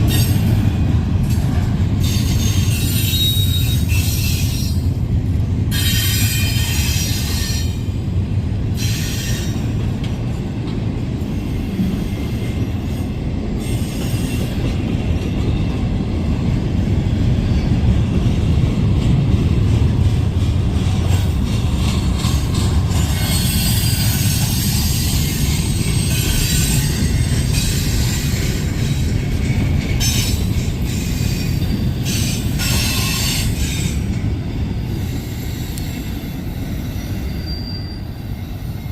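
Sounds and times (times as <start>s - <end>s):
train wheels squealing: 0.0s - 0.8s, 1.9s - 5.0s, 5.7s - 8.0s, 8.7s - 9.8s, 11.2s - 15.7s, 21.1s - 38.9s
train cars rumbling past: 0.0s - 38.9s.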